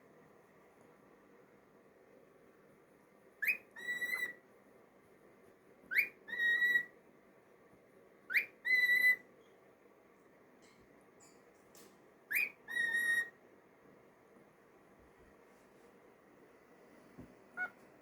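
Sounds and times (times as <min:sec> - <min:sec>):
cockatiel whistling: 0:03.4 - 0:04.4, 0:05.9 - 0:06.9, 0:08.3 - 0:09.2, 0:12.3 - 0:13.4, 0:17.6 - 0:17.8.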